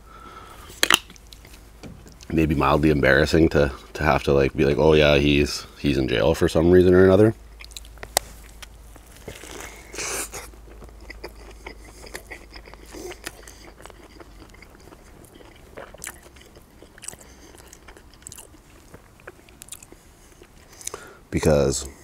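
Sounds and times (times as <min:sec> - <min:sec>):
wet chewing: 0:00.7 - 0:02.3, 0:07.5 - 0:21.0
biting into burger: 0:07.6 - 0:21.1.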